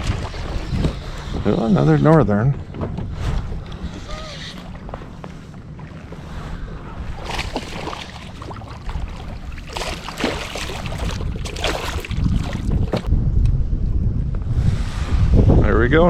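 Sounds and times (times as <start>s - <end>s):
wind rumbling on microphone: 0.0s - 16.0s
fish thrashing water splashing: 7.2s - 13.1s.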